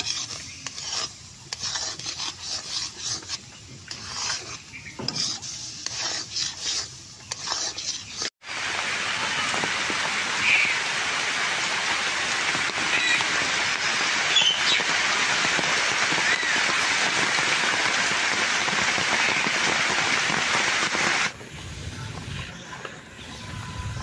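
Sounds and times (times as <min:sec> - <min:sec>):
heavy rain on water and leaves: 0:08.4 - 0:21.3.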